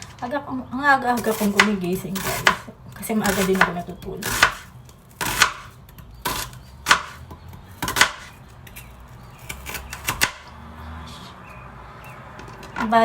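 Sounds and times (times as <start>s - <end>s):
knife chopping on cutting board: 1.2s - 5.7s, 6.3s - 7.2s, 7.8s - 8.4s.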